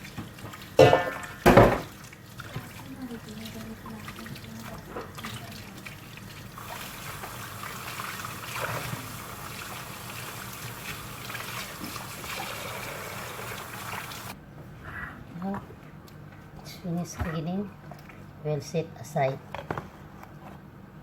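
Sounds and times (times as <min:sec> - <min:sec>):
running water splashing: 0:00.0 - 0:14.4.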